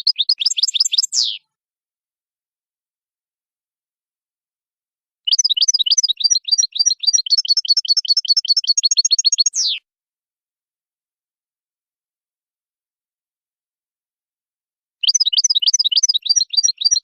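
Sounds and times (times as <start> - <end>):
goldfinch chirping and trilling: 0.0 - 1.4, 5.3 - 9.8, 15.0 - 17.0.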